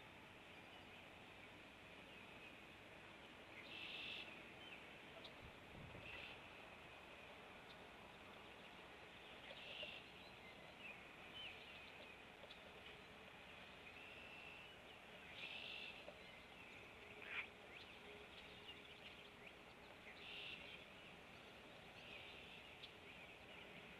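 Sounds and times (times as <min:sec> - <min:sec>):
low outdoor hiss: 0:00.0 - 0:23.9
faint bird chirps: 0:03.5 - 0:06.5, 0:07.6 - 0:13.1, 0:13.7 - 0:23.9.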